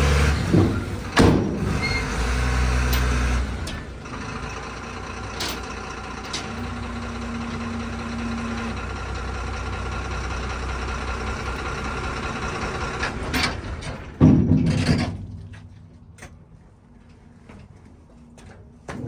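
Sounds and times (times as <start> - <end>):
heavy equipment engine idling: 0.0 - 14.4.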